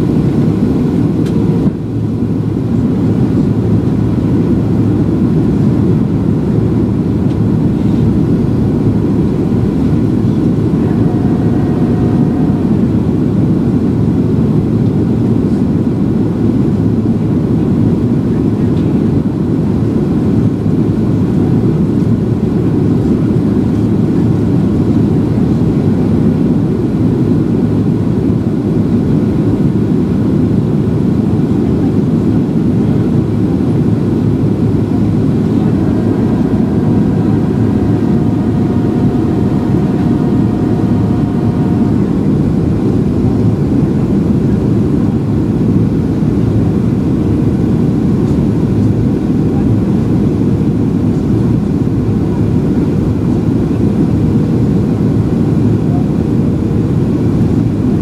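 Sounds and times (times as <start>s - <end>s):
rushing air: 0.0s - 15.2s, 32.3s - 48.0s
faint multi-tone hum: 0.0s - 58.0s
jet engine rumble: 0.0s - 58.0s.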